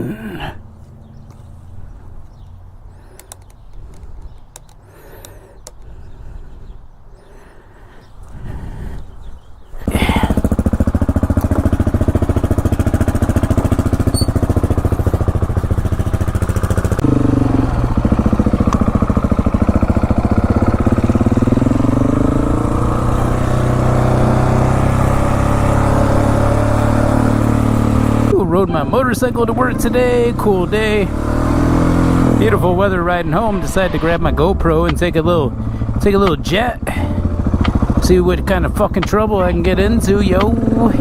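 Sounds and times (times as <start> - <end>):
motorcycle engine running: 9.8 - 41.0.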